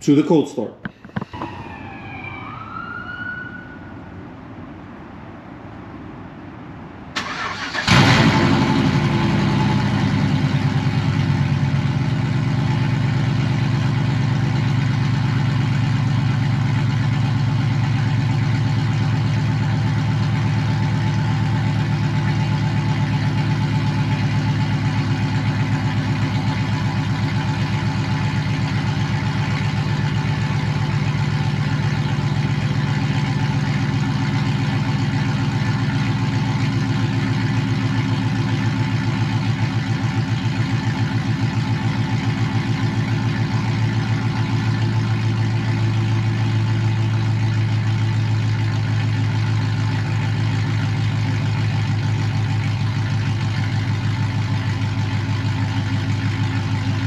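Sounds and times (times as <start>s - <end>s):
pickup truck engine idling: 7.1s - 57.0s.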